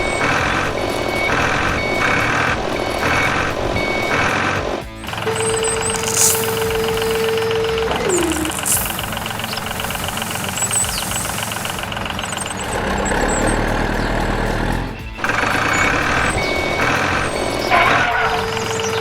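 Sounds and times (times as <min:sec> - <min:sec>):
steady tone: 0:00.0 - 0:12.8
truck engine running: 0:00.0 - 0:19.0.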